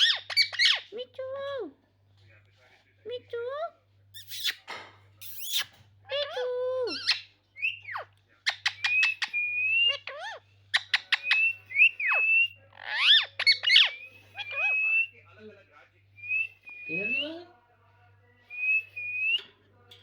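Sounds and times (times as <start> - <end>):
parrot whistling: 8.6 - 15.2, 16.2 - 17.4, 18.5 - 19.4.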